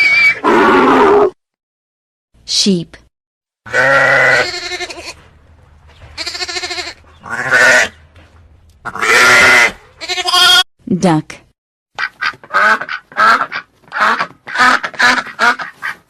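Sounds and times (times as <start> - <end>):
sheep bleating: 3.7 - 5.3, 6.2 - 8.0, 8.8 - 10.6.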